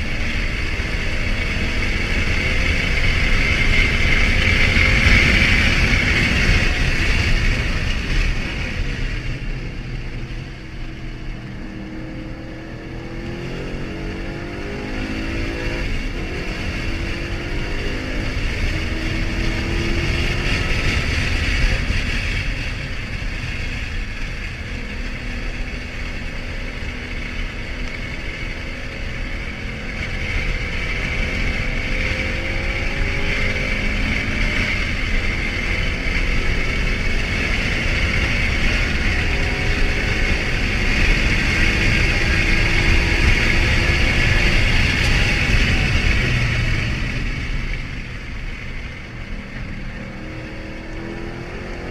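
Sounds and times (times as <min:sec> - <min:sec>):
car engine running: 0:00.0 - 0:51.9
road and wind noise: 0:00.0 - 0:51.9.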